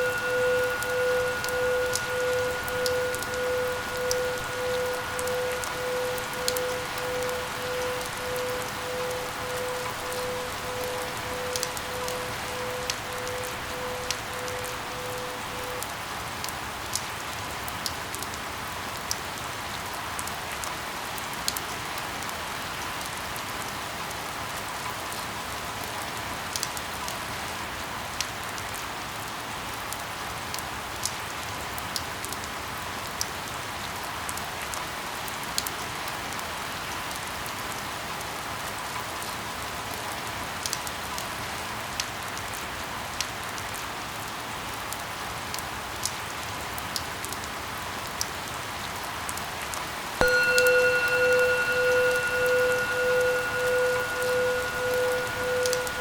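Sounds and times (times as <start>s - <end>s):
steady rain hiss: 0.0s - 24.5s.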